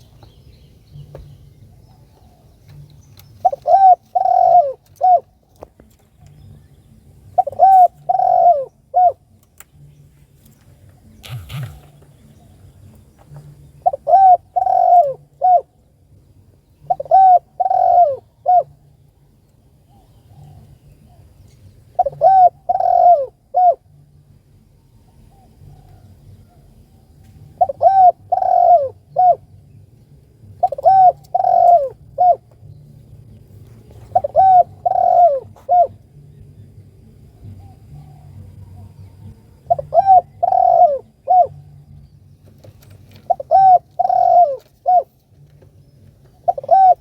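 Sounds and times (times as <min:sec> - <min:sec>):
dove cooing: 0:00.9 - 0:05.4, 0:07.3 - 0:09.4, 0:10.9 - 0:15.8, 0:16.8 - 0:19.0, 0:19.9 - 0:24.0, 0:25.0 - 0:29.6, 0:30.4 - 0:32.6, 0:33.8 - 0:36.2, 0:37.3 - 0:47.0.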